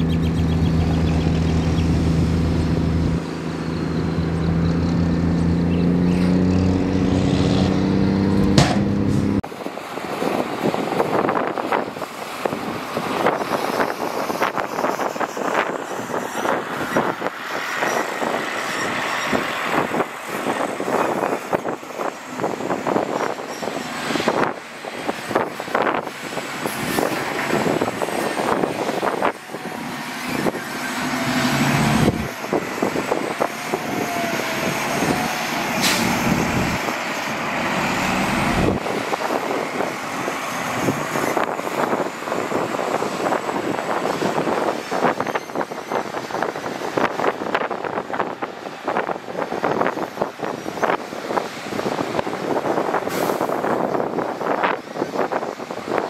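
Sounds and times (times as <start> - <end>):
heavy diesel engine running: 15.8 - 45.1.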